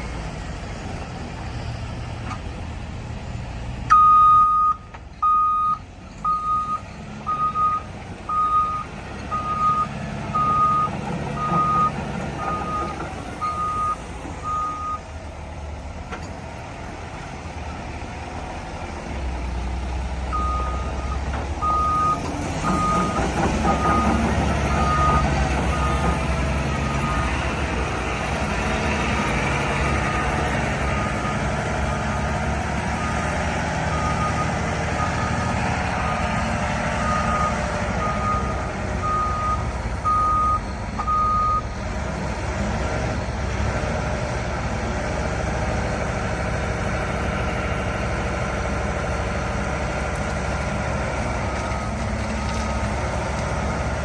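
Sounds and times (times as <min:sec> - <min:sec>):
diesel machine running: 0:00.0 - 0:54.0
reversing alarm beeping: 0:03.9 - 0:15.0, 0:20.4 - 0:27.3, 0:37.0 - 0:41.6.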